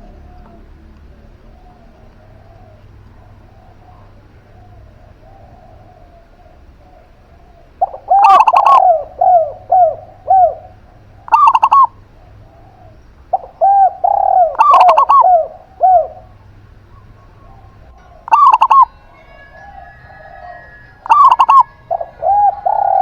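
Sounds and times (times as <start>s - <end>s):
doves cooing: 0.0s - 23.0s.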